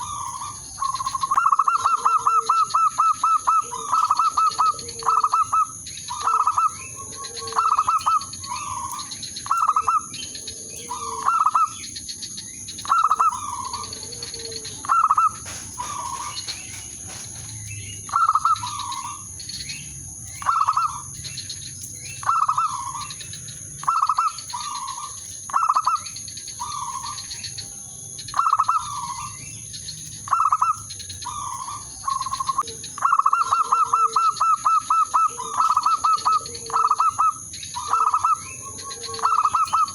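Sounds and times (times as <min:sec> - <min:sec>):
dove cooing: 0:00.0 - 0:21.3, 0:22.0 - 0:29.6, 0:30.2 - 0:39.9
small birds chirping: 0:00.0 - 0:39.9
high-pitched hiss: 0:07.7 - 0:32.7.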